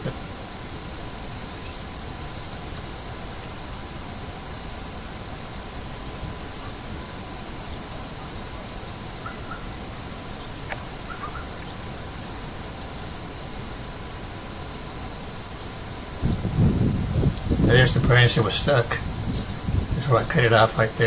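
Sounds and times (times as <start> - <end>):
outdoor background hiss: 0.0 - 21.0
faint bird chirps: 1.3 - 3.9, 6.4 - 12.3.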